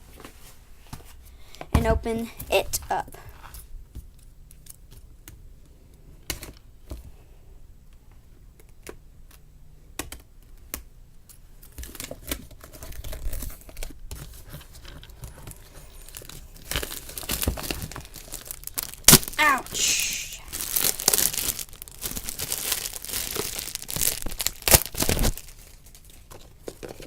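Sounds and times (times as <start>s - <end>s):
packaging tearing and crinkling: 11.8s - 27.0s.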